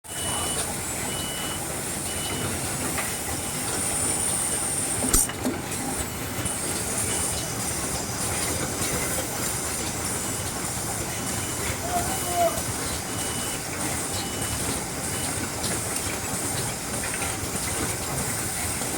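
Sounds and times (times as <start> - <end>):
machine hissing and humming: 0.1 - 18.9
short high beeps: 13.1 - 13.6.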